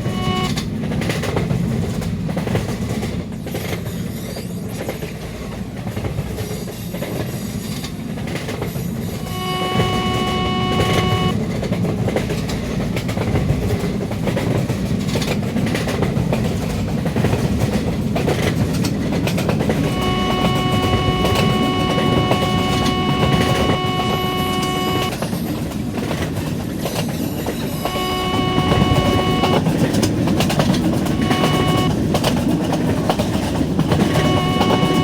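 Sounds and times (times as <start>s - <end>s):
locomotive horn: 0.0s - 0.7s, 9.1s - 11.4s, 19.7s - 25.2s, 27.5s - 32.0s, 33.4s - 35.0s
express train passing at speed: 0.0s - 9.5s, 11.3s - 23.1s, 23.9s - 31.2s.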